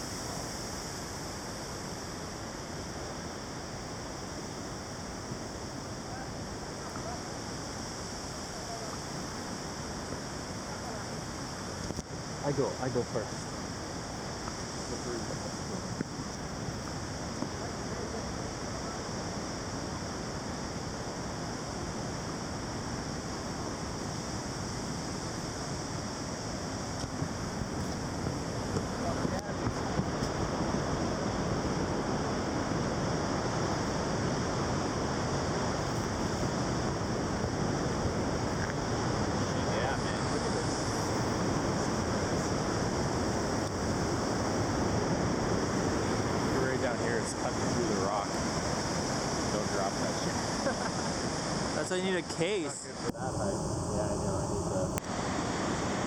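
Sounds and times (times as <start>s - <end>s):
running water rushing: 23.2s - 56.0s.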